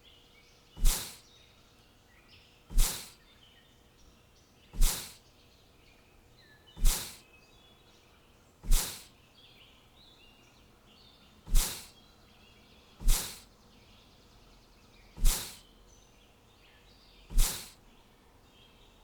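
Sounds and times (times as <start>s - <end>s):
faint bird chirps: 0.0s - 19.0s
loud whooshes: 0.8s - 1.2s, 2.7s - 3.1s, 4.8s - 5.2s, 6.8s - 7.2s, 8.6s - 9.1s, 11.5s - 11.9s, 13.0s - 13.4s, 15.2s - 15.6s, 17.3s - 17.7s.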